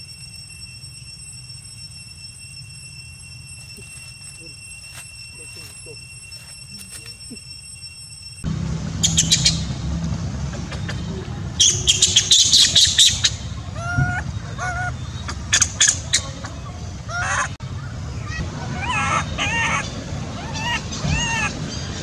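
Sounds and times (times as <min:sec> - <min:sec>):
steady low rumble: 0:00.0 - 0:22.0
falling bird calls: 0:03.1 - 0:07.7, 0:10.5 - 0:22.0
birds chirping and squawking: 0:03.2 - 0:08.2, 0:08.9 - 0:22.0.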